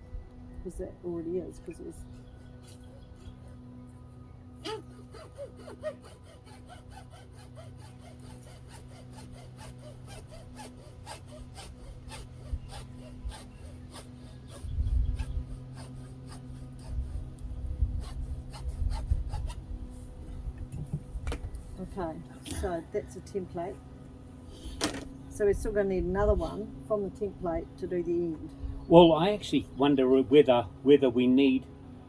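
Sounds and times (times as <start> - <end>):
plastic pipe cutting strokes: 4.6 - 19.6.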